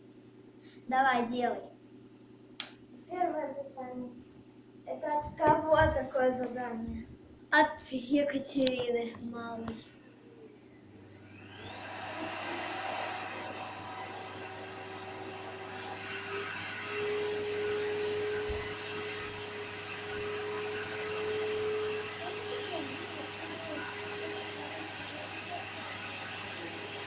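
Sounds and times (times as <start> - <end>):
vacuum cleaner motor whining: 10.8 - 27.0.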